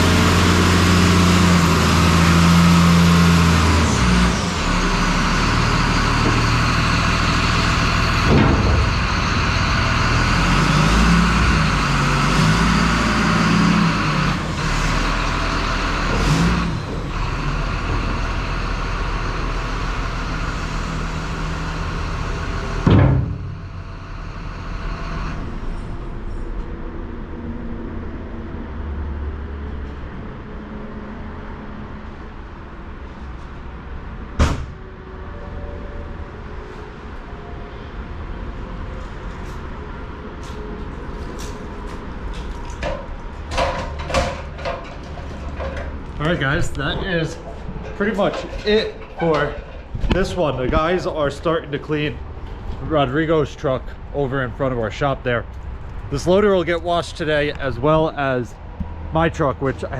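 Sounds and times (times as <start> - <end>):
heavy vehicle engine running: 0.0 - 59.9
loud bang: 8.2 - 9.9, 22.8 - 23.7
door clunks: 22.8 - 23.6, 34.4 - 34.8.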